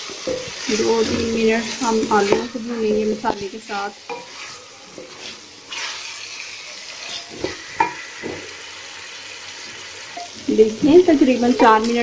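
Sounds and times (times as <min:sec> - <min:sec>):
spatula scraping and knocking pan: 0:00.0 - 0:06.2, 0:06.9 - 0:08.6, 0:10.8 - 0:12.0
potatoes sizzling in oil: 0:00.0 - 0:12.0.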